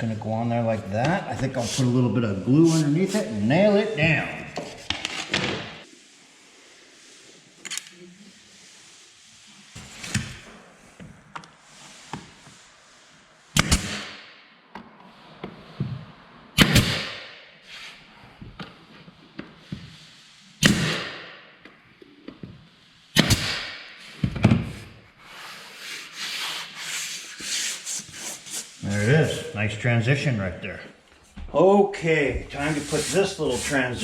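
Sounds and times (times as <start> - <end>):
nails hammered into wood: 13.6 - 14.2, 16.6 - 17.4, 20.6 - 21.4, 23.2 - 23.9
wood rubbing: 32.1 - 34.0.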